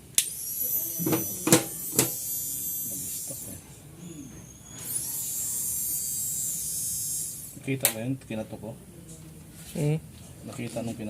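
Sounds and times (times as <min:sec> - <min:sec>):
faint tone: 0:00.4 - 0:07.5.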